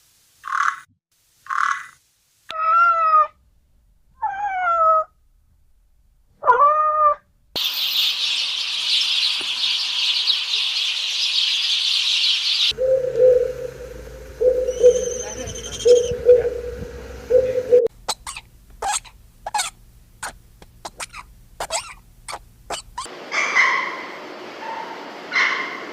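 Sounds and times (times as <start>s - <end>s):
cat meowing: 4.2s - 5.1s, 6.4s - 7.2s
high-pitched hiss: 7.6s - 17.9s.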